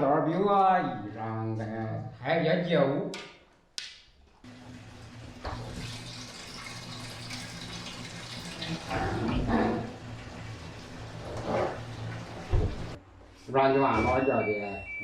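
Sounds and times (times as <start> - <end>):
washing machine hum: 4.4 - 13.3
water rushing into drum: 4.5 - 13.0.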